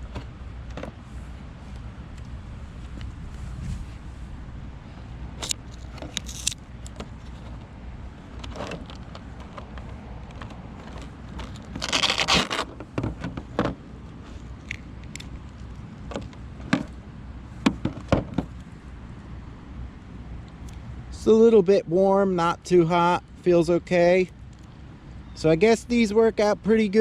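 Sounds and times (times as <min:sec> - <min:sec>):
handling clicks and knocks: 0:00.0 - 0:01.0, 0:05.4 - 0:07.7, 0:08.3 - 0:17.0, 0:17.6 - 0:18.7
rasping rustle: 0:00.0 - 0:17.0.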